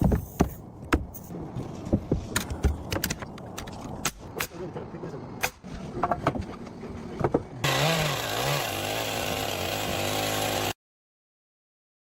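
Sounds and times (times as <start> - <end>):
chainsaw engine running: 7.6 - 10.8.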